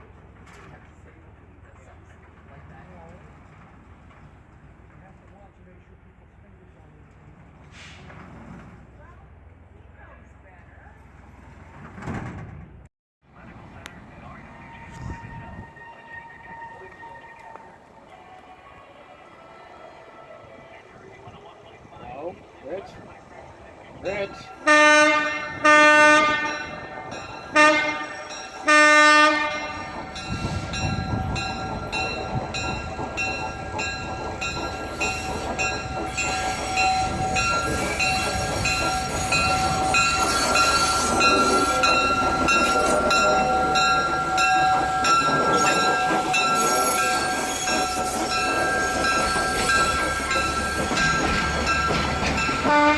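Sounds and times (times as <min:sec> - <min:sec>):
locomotive horn blasts: 0:24.2 - 0:31.4, 0:35.4 - 0:52.9
train wheels clicking over rail joints: 0:29.4 - 0:52.9.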